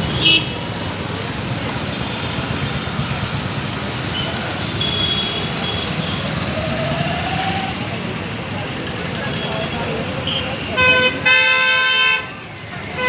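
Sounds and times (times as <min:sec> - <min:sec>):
city road traffic: 0:00.0 - 0:13.0.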